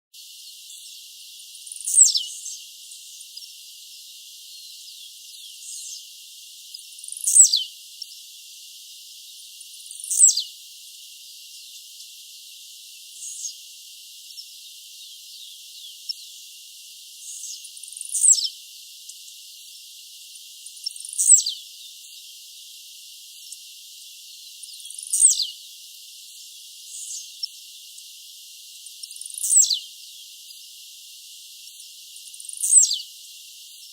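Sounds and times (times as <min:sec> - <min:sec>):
faint steady hiss: 0:00.2 - 0:33.9
bird singing sharp downward notes: 0:00.7 - 0:02.6, 0:06.7 - 0:08.1, 0:09.9 - 0:10.5, 0:17.2 - 0:18.6, 0:20.8 - 0:21.6, 0:24.6 - 0:25.6, 0:29.1 - 0:29.9, 0:32.5 - 0:33.0.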